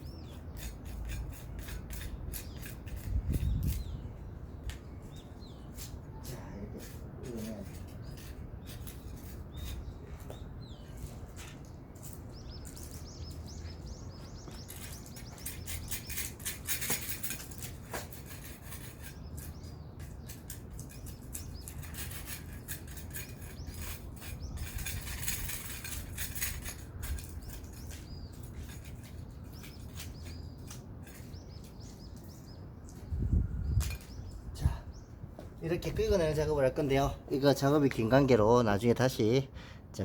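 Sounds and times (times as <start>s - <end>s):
birds chirping: 0.0s - 40.0s
hand tool scraping roof coating: 0.1s - 3.9s, 14.5s - 32.0s.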